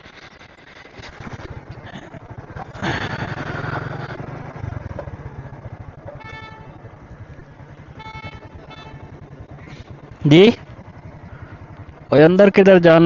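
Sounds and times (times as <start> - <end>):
motorcycle engine idling: 0.1 - 13.0
vehicle horn honking: 6.2 - 6.9, 7.9 - 9.3.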